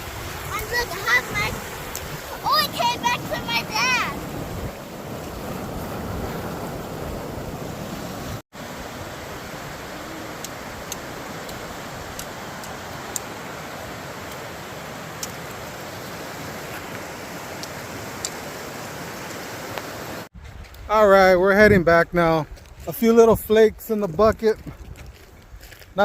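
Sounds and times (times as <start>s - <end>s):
river water rushing: 0.0s - 20.3s.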